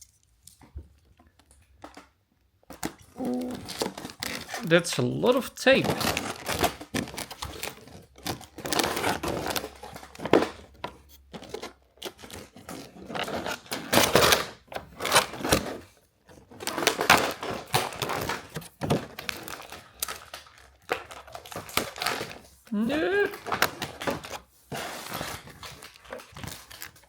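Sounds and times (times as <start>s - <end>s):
plastic crinkling: 2.8s - 14.4s, 15.0s - 27.0s.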